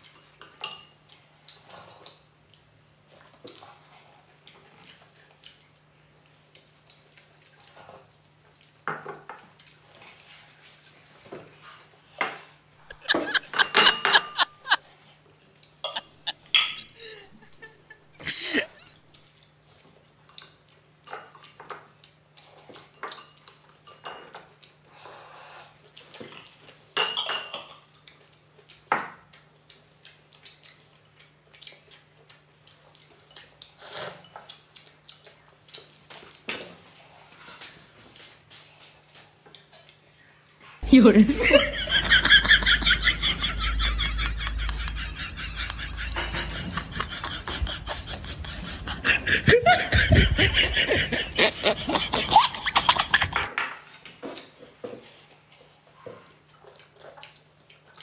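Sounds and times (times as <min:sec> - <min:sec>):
utensils clinking on tableware: 0:13.3 - 0:14.7, 0:15.8 - 0:16.9, 0:27.0 - 0:27.8
steady low hum: 0:40.8 - 0:53.5.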